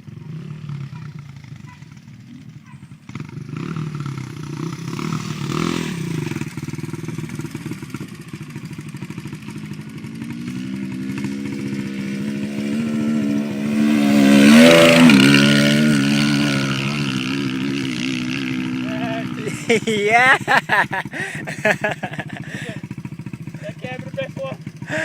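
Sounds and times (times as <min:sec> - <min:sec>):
motocross bike engine revving: 0:00.0 - 0:25.0.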